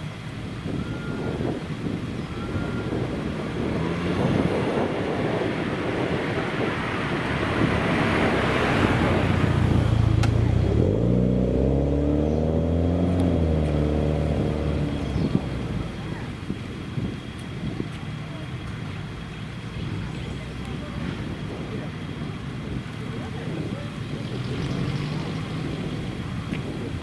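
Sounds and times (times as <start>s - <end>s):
car engine rising and falling: 0.0s - 27.0s
car driving past: 2.7s - 16.3s.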